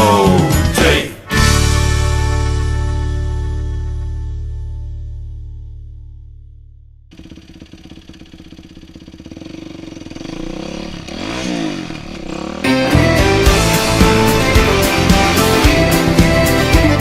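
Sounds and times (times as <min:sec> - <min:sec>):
loud music: 0:00.0 - 0:04.0, 0:12.6 - 0:17.0
dirt bike engine revving: 0:07.1 - 0:17.0.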